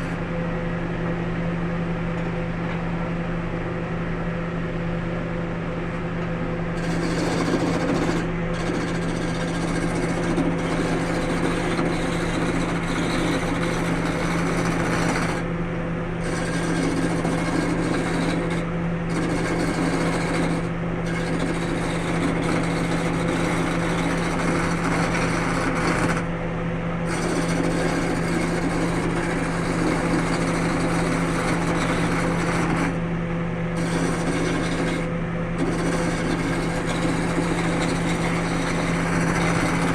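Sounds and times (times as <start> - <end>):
tool scraping spinning wood: 6.7 - 15.5, 16.2 - 26.3, 27.0 - 33.1, 33.7 - 39.9
wood lathe motor hum: 6.8 - 15.5, 16.2 - 26.3, 27.1 - 33.0, 33.8 - 39.9.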